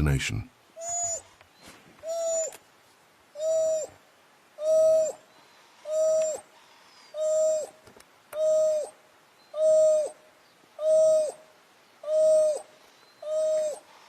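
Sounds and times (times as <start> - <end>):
hoo calls: 0.8 - 1.4, 2.0 - 2.6, 3.3 - 4.0, 4.6 - 7.8, 8.4 - 10.2, 10.8 - 14.0.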